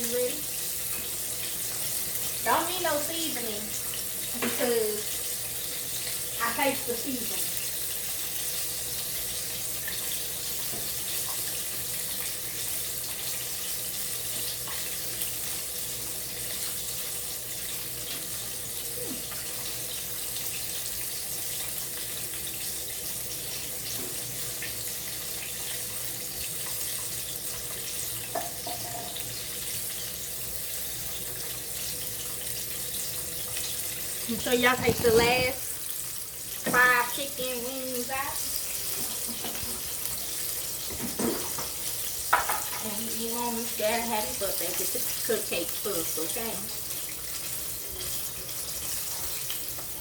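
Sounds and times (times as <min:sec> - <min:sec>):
chicken frying in hot oil: 0:00.0 - 0:50.0.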